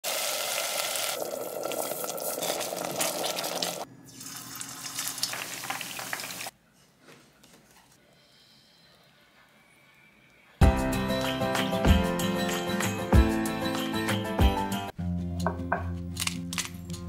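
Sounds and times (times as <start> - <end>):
hot oil sizzling and crackling: 0.0 - 6.5.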